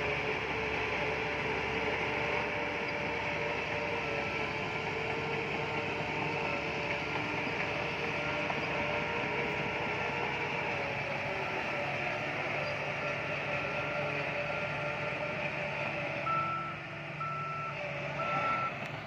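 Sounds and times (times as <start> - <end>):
bulldozer engine and tracks: 0.0 - 19.0.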